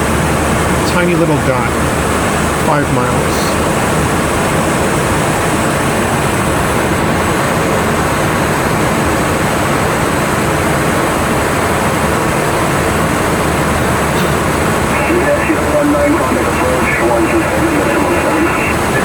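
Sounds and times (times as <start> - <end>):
cockpit airflow noise: 9.7 - 19.0.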